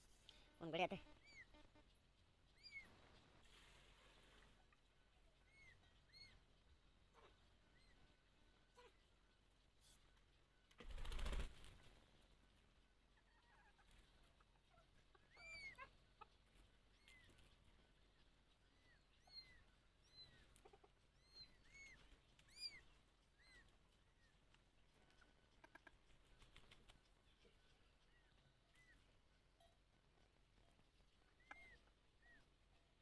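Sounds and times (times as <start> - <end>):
chicks peeping: 13.0 - 29.2.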